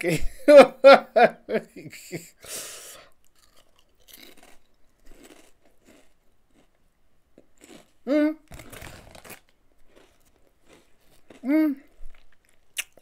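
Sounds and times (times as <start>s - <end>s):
crunchy chip being chewed: 3.2s - 6.8s, 7.4s - 13.0s.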